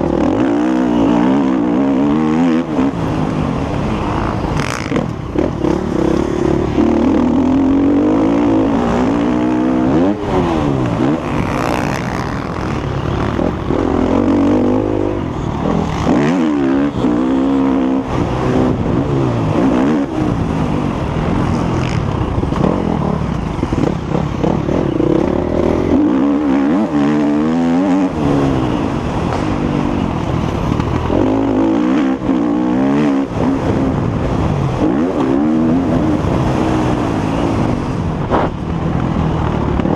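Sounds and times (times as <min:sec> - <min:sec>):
motocross bike engine revving: 0:00.0 - 0:38.7.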